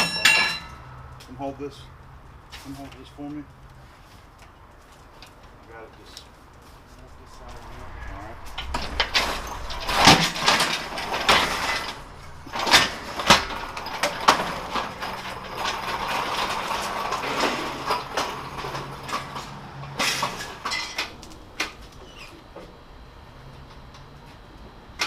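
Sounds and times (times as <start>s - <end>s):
metal knocks and rattles: 6.8s - 21.2s
forklift motor humming: 8.4s - 18.7s.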